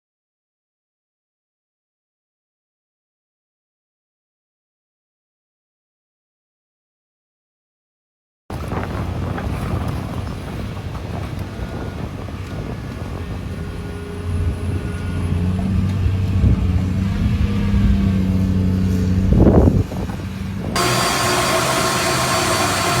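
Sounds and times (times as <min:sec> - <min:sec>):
engine low hum: 0:13.6 - 0:23.0
held tones: 0:20.8 - 0:23.0.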